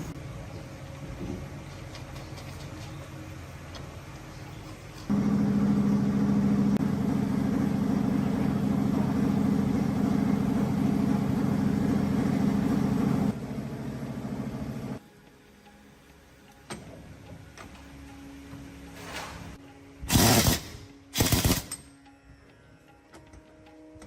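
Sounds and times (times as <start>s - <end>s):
motor running: 5.1s - 15.0s.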